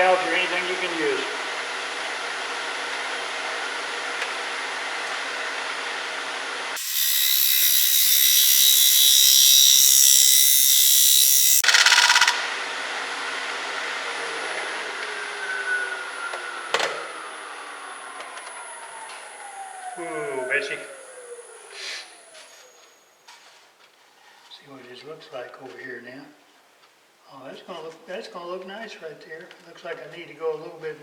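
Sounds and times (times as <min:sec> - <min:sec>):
tool cutting hiss: 0:06.8 - 0:12.3
wood lathe running: 0:06.8 - 0:12.4.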